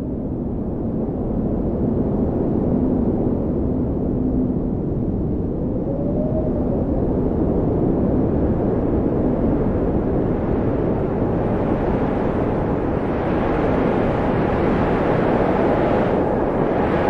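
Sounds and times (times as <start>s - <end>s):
wind blowing: 4.8s - 17.0s.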